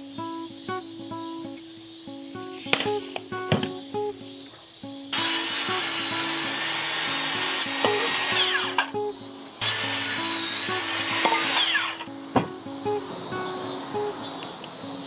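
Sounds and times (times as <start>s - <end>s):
electric power tool cutting wood: 5.1s - 8.9s, 9.6s - 12.1s.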